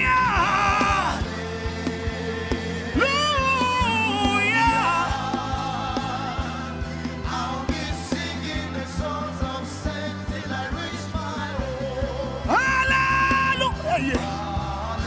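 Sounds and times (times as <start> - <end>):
person singing: 0.0 - 1.8, 3.0 - 15.0
bass: 0.0 - 15.0.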